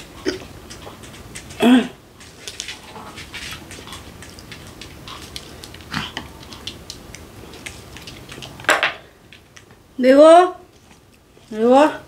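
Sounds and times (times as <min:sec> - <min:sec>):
chewing and lip smacking: 0:00.0 - 0:01.6, 0:02.2 - 0:08.7
lettuce crackling: 0:00.0 - 0:09.8.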